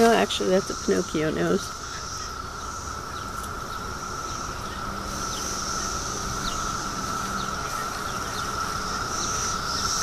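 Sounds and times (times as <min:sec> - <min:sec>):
cicadas singing: 0:00.0 - 0:10.0.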